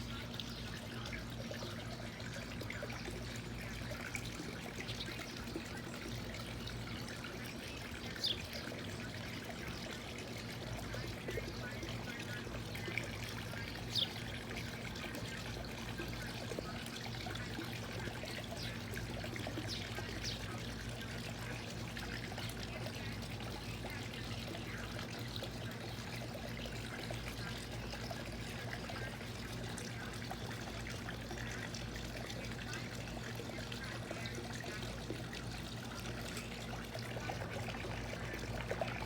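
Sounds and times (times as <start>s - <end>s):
small birds chirping: 0.0s - 14.6s, 16.2s - 20.8s
water trickling: 0.0s - 39.0s.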